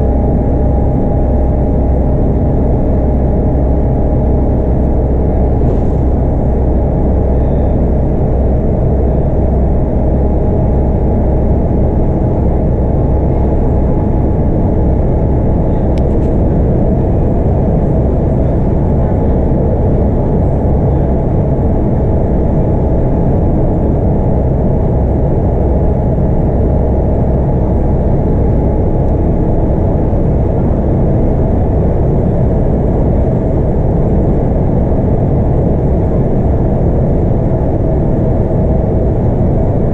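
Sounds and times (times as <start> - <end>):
road and tyre noise: 0.0 - 23.6
bus diesel engine running: 0.0 - 39.9.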